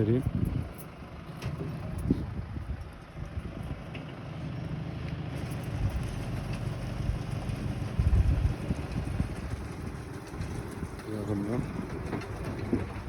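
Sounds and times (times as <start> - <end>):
tractor diesel engine idling: 0.0 - 13.0
low rumble: 5.6 - 13.0.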